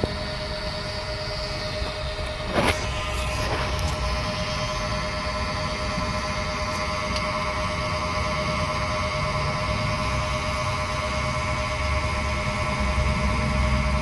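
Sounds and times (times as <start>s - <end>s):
air pump humming: 0.0s - 14.0s.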